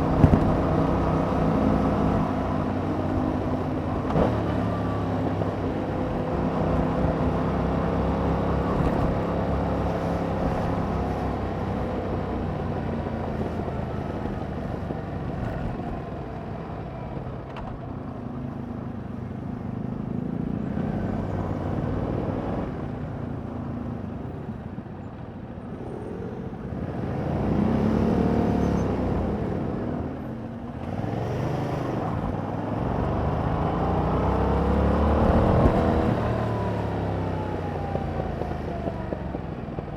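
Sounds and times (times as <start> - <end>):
motorcycle engine revving: 30.8 - 39.4.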